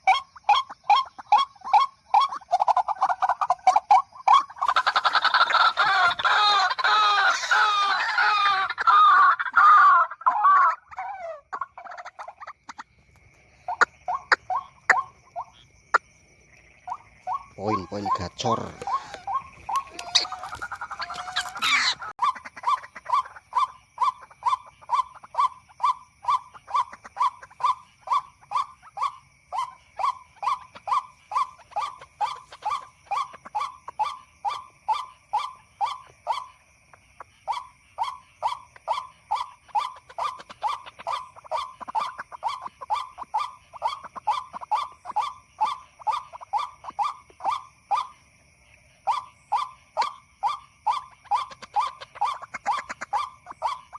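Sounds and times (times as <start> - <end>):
busy bird call: 0.0 - 12.9, 13.5 - 16.1, 16.7 - 48.2, 49.0 - 53.9
waterhen call repeated: 4.3 - 12.0, 17.3 - 25.5.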